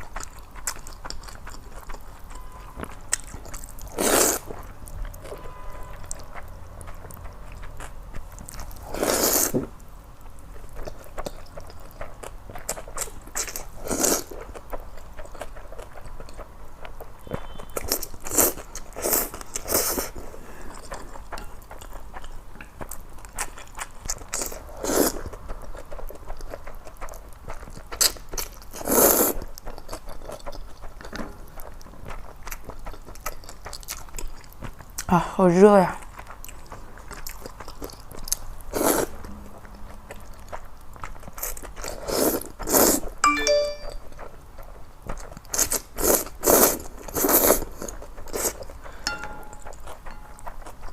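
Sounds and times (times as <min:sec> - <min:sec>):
chewing: 0:00.0 - 0:35.1, 0:35.9 - 0:43.2, 0:44.0 - 0:50.9
loud noodle slurp: 0:03.9 - 0:04.5, 0:08.8 - 0:09.6, 0:28.8 - 0:29.4, 0:38.7 - 0:39.2, 0:41.4 - 0:43.2, 0:45.5 - 0:48.6.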